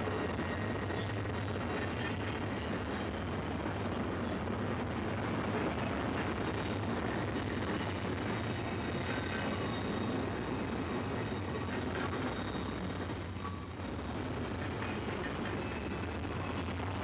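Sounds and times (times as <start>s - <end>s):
steel wheels rumbling on rail: 0.0s - 17.0s
high wheel squeal: 6.6s - 15.9s.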